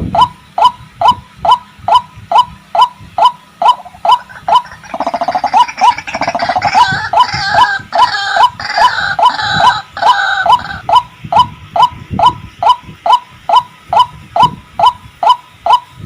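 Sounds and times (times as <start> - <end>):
rough chattering bird call: 3.6 - 10.8.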